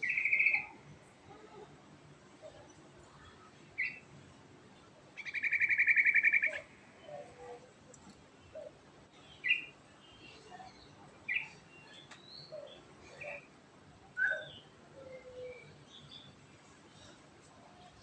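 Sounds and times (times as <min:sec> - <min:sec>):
bulbul singing trills: 0:00.0 - 0:00.8, 0:05.2 - 0:07.1, 0:08.6 - 0:13.5.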